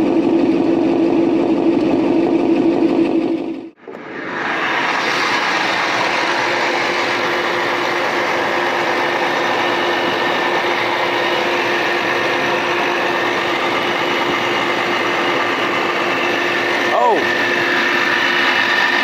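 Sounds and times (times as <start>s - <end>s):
car engine idling: 5.4s - 19.0s.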